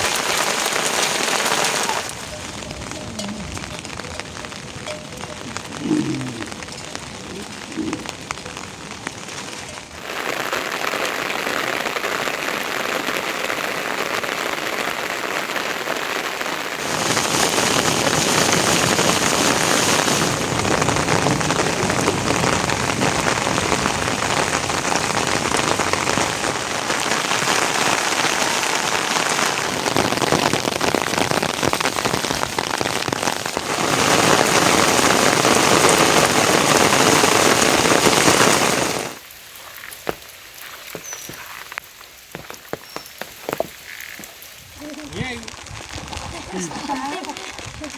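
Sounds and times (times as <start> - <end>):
rain pattering: 0.0 - 47.9.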